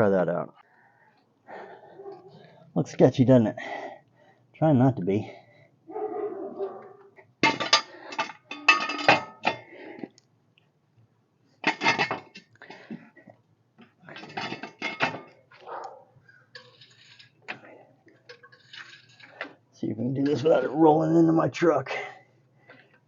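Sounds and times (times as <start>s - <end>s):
metal clanking and clinking: 7.2s - 9.7s, 11.6s - 13.2s, 13.8s - 15.9s, 16.5s - 20.9s.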